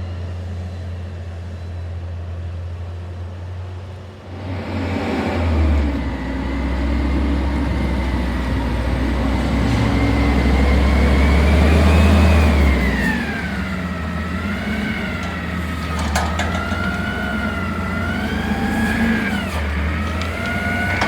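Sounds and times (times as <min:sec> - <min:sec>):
truck engine revving: 0:04.6 - 0:21.0.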